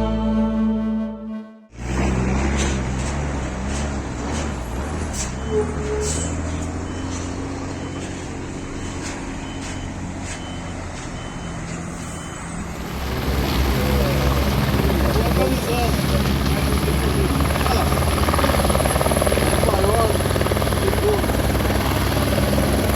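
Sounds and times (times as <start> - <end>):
large engine droning: 0.0 - 22.9
reversing alarm beeps: 5.0 - 12.9.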